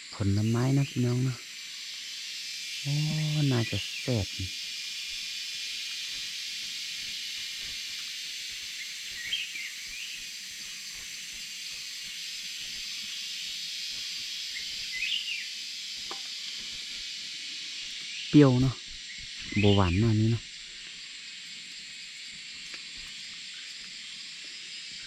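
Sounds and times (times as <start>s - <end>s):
insects buzzing: 0.0s - 25.0s
bird chirping: 8.8s - 10.2s, 14.5s - 15.5s, 18.2s - 20.4s.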